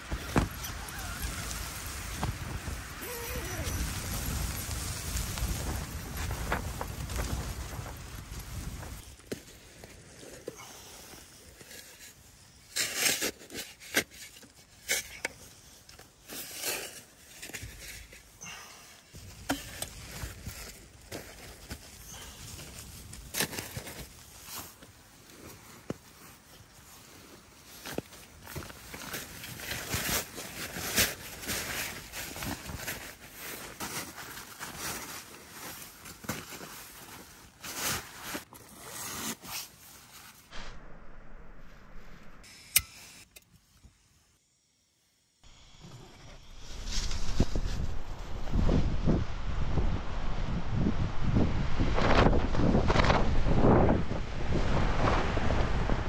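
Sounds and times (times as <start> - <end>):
shovel scraping packed snow: 8.4 - 15.3, 19.3 - 40.6.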